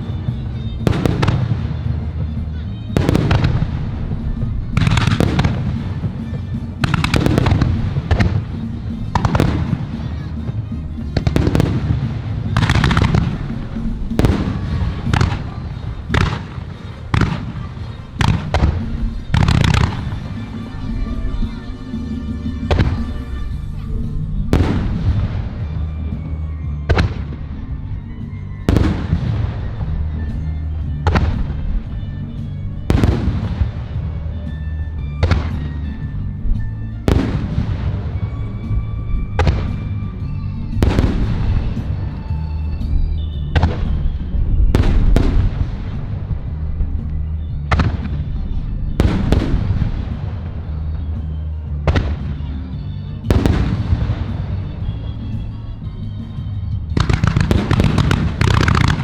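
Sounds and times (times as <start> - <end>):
music with bass line: 0.0 - 59.0
firework shells bursting: 53.1 - 59.0.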